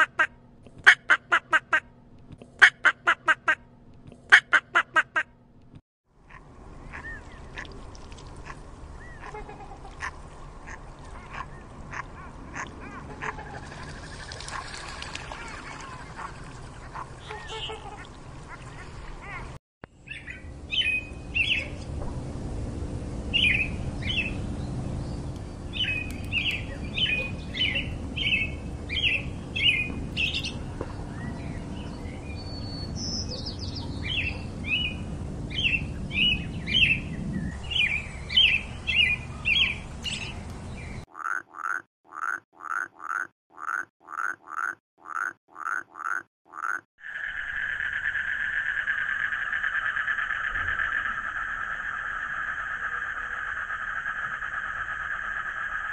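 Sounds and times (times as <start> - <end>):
faint duck calls: 6.2 - 7.8, 8.4 - 13.6
steady low rumble: 19.9 - 41.0, 47.2 - 55.9.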